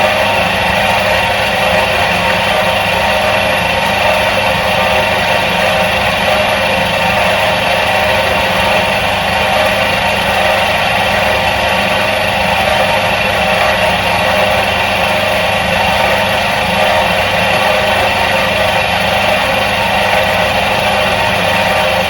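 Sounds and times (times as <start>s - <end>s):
washing machine motor whirring: 0.0s - 22.0s.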